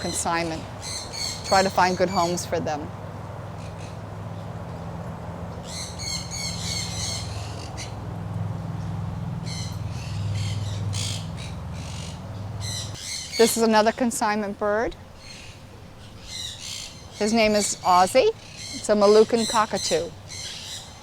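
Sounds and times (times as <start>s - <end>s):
parrots squawking: 0.0s - 2.7s, 5.6s - 8.0s, 9.4s - 14.0s
steady low hum: 0.0s - 21.0s.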